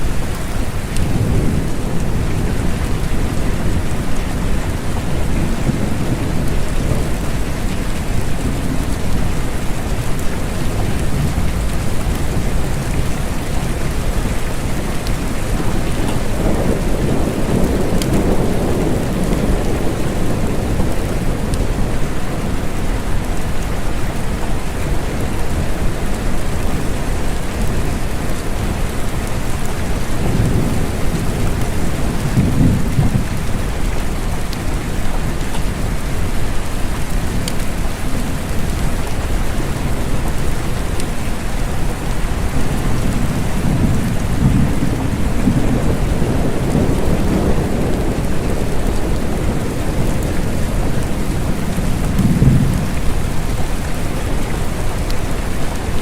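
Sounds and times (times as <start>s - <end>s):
steady rain: 0.0s - 56.0s
low rolling thunder: 0.4s - 23.8s, 29.6s - 36.0s, 41.8s - 56.0s.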